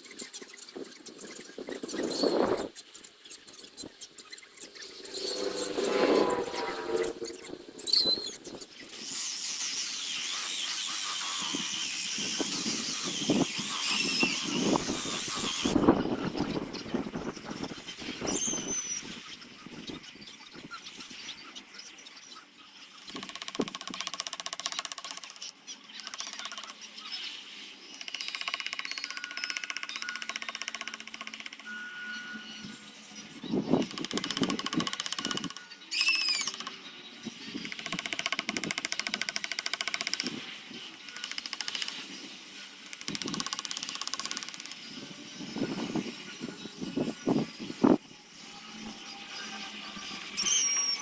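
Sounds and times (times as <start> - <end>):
handheld power tool buzzing: 9.0 - 16.0
tool mechanism ticking fast: 23.0 - 26.8, 28.0 - 31.7, 33.8 - 36.8, 37.6 - 40.4, 41.0 - 42.0, 42.9 - 44.9.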